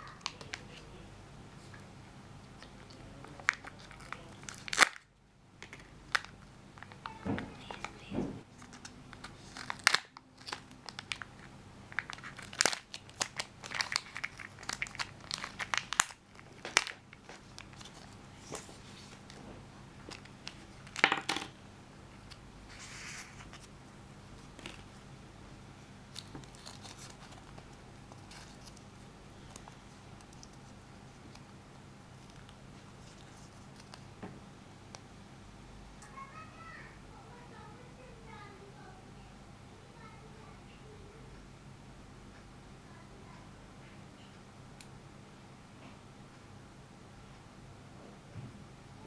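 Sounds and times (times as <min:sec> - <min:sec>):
packaging crinkling and tearing: 0:02.6 - 0:19.4, 0:26.1 - 0:31.6.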